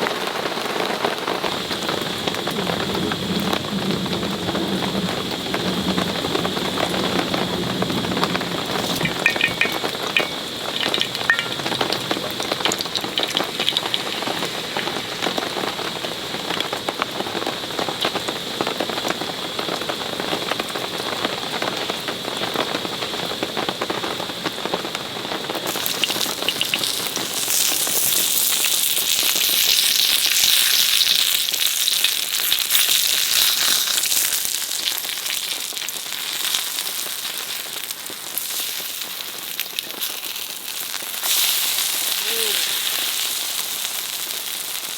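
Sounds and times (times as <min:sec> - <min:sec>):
rain pattering on a tarp: 0:00.0 - 0:44.9
food sizzling in a hot pan: 0:08.2 - 0:44.9.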